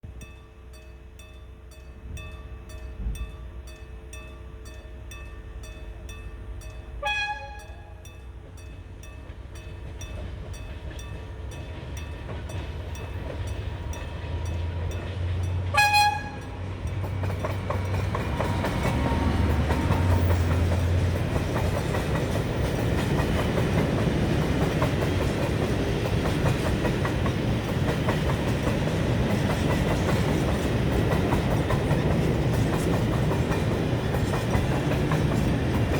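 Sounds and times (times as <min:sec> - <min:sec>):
locomotive engine rumble: 0:00.0 - 0:35.9
train horn blasts: 0:07.0 - 0:08.1, 0:15.6 - 0:16.8
freight wagons clattering on rails: 0:07.1 - 0:35.9.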